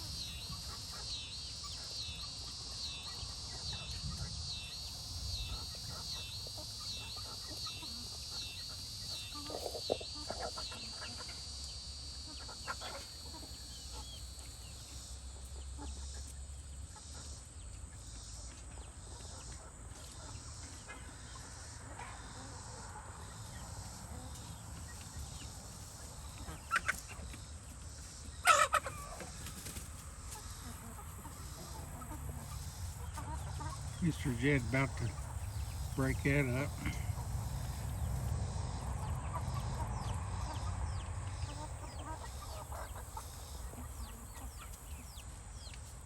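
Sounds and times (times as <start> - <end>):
chickens clucking: 0.0 - 46.0
insects chorus: 0.0 - 46.0.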